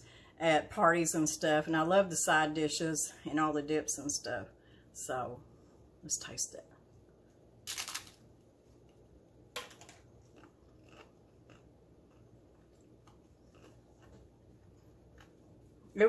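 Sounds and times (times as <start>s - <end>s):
tortilla chip crunching bites: 7.7s - 8.2s, 9.7s - 15.4s
faint crackly chewing: 8.6s - 9.2s, 10.0s - 16.0s.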